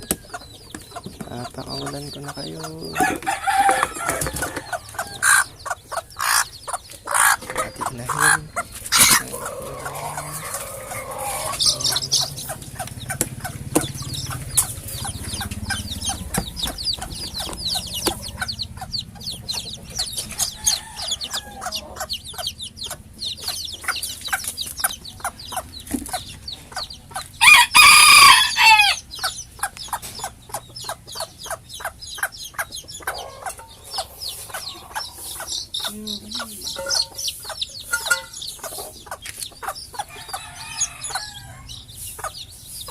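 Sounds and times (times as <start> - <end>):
chickens clucking: 0.0 - 42.9
rooster crowing: 2.8 - 5.6, 7.1 - 12.8, 20.0 - 22.2, 27.4 - 29.1, 40.1 - 41.8.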